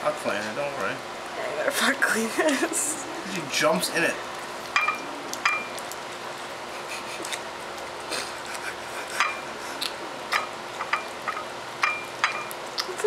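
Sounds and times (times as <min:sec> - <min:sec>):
food dish clicking and clinking: 0:04.7 - 0:05.8, 0:09.2 - 0:09.4, 0:10.3 - 0:12.9.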